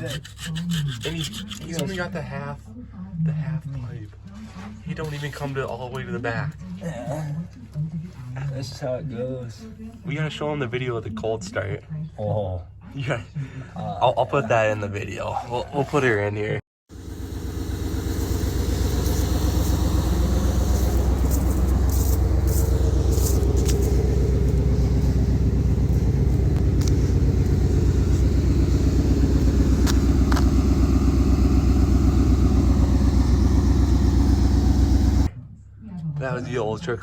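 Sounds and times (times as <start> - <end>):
truck engine pulsing rumble: 16.9 - 35.4.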